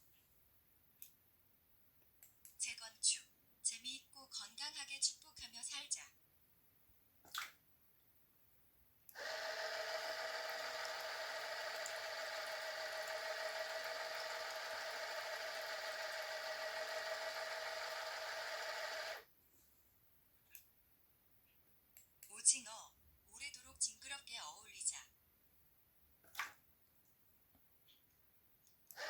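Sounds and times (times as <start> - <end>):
small electric motor running: 9.2 - 19.2.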